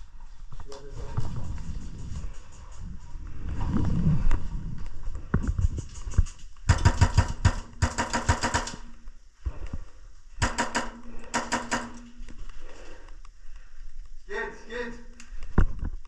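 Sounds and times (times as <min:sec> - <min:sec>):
airsoft gun bursts: 0:06.7 - 0:08.9, 0:10.4 - 0:12.1.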